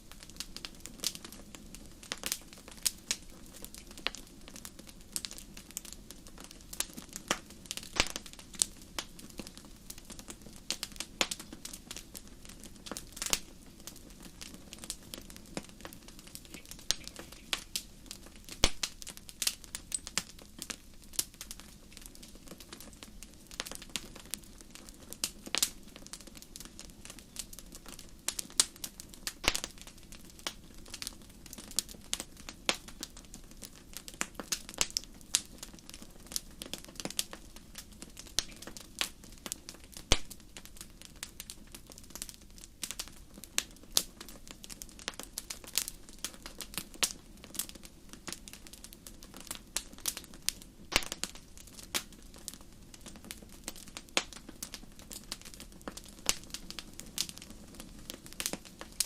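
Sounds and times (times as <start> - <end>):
fire popping and snapping: 0.0 - 59.0
low rumble of flames: 0.0 - 59.0
wood fire crackling: 0.0 - 59.0.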